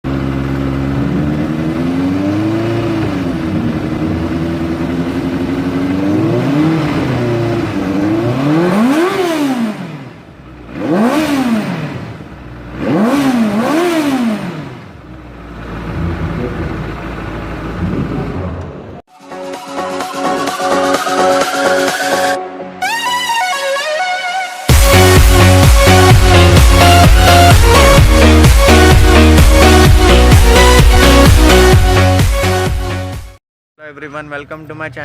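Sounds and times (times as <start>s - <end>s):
vehicle engine idling and revving: 0.0s - 19.1s, 24.7s - 33.4s.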